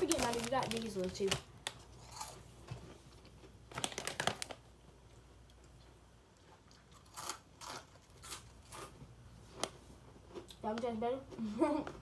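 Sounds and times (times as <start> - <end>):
snack packet crackling: 0.0 - 2.4, 3.2 - 4.7.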